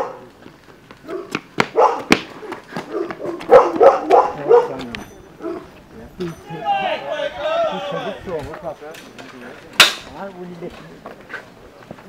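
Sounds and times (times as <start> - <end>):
dog barking: 0.0 - 0.2, 1.0 - 5.7.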